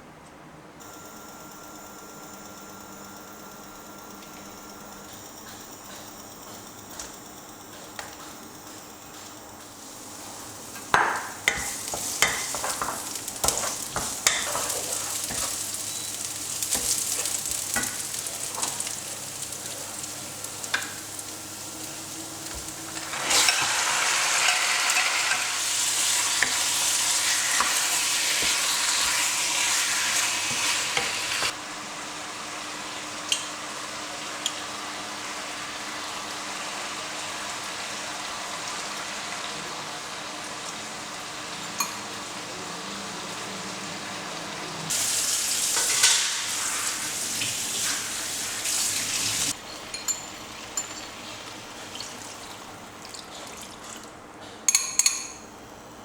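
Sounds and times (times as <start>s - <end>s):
food sizzling in a pan: 9.8s - 53.0s.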